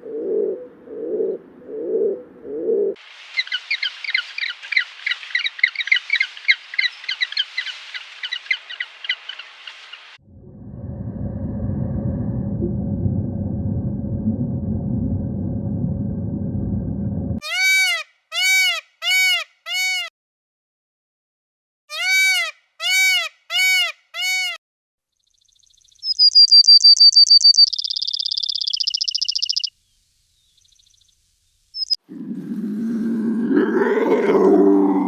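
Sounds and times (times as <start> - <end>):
low rumbling noise: 10.2 - 17.4
rising and falling animal calls: 31.8 - 35.0.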